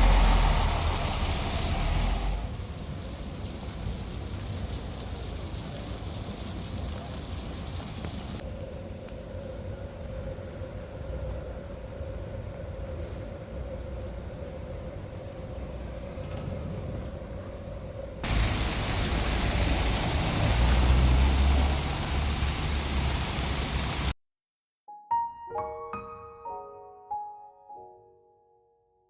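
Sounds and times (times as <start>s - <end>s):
moving vehicle rumble: 0.0s - 24.2s
soft piano music: 24.9s - 29.0s.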